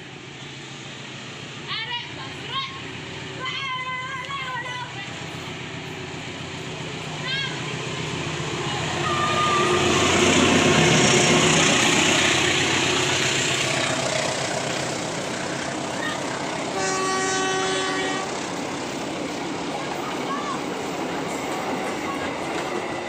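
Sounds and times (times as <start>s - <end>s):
train passing: 0.0s - 23.0s
locomotive horn blast: 9.0s - 10.4s, 16.7s - 18.4s.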